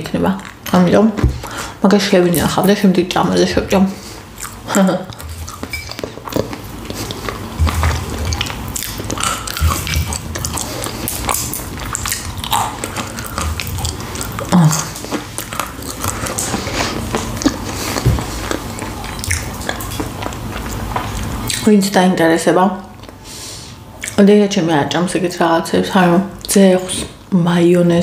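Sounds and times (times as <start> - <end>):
biting and chewing crisp sandwich: 4.2 - 21.6.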